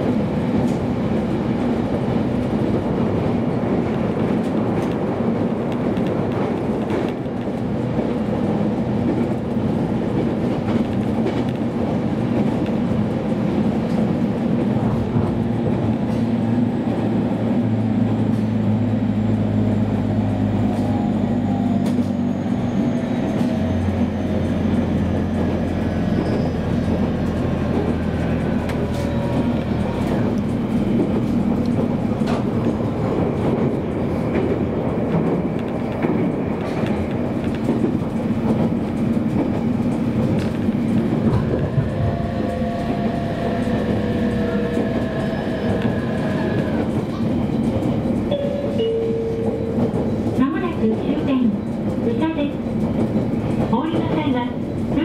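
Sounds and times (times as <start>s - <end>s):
train wheels rumbling on rail: 0.0s - 55.0s
clicks over the track: 3.8s - 7.6s
train motor whine: 40.5s - 47.2s.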